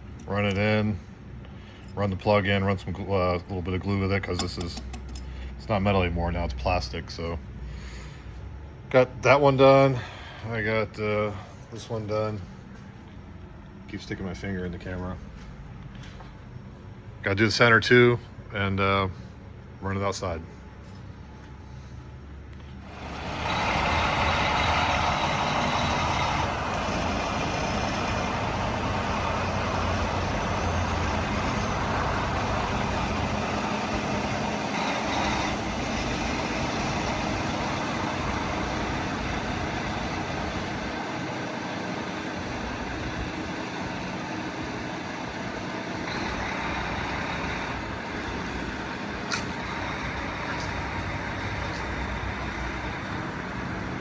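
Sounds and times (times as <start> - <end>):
engine running: 20.6 - 54.0.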